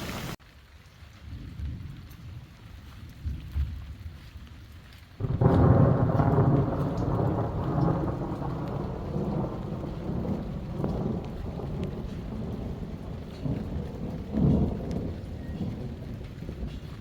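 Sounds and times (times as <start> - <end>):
steady rain: 0.0 - 17.0
thunder rumbling: 5.2 - 17.0.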